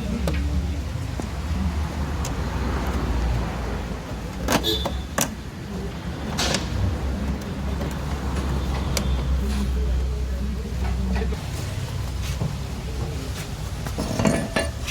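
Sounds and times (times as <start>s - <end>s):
metal parts knocking and clinking: 14.0s - 14.9s.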